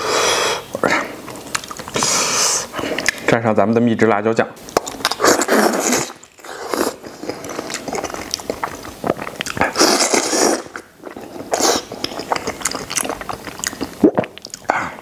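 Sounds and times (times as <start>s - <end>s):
person biting and chewing: 4.7s - 14.8s
mouth smacking clicks: 12.0s - 14.9s.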